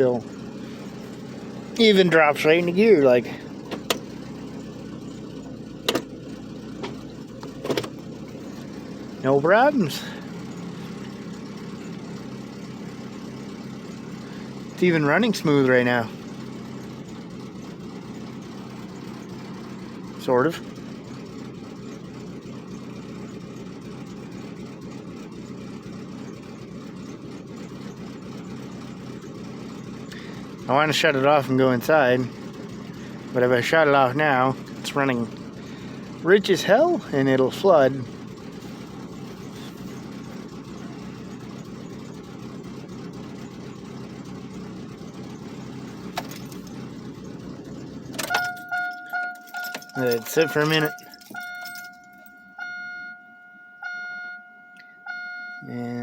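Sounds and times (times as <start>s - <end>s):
car engine idling: 0.0s - 56.0s
two-tone chime: 48.4s - 55.7s.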